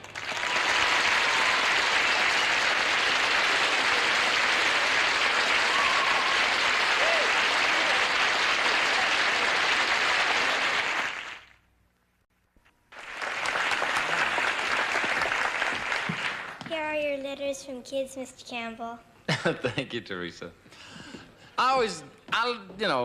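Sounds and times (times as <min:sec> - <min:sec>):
audience applauding: 0:00.0 - 0:11.6, 0:12.9 - 0:16.6.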